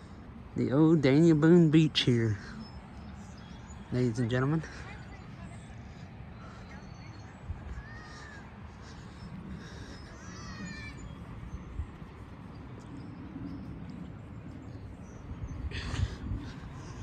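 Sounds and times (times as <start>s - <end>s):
bird calling: 1.6s - 17.0s
wind on the microphone: 4.9s - 17.0s.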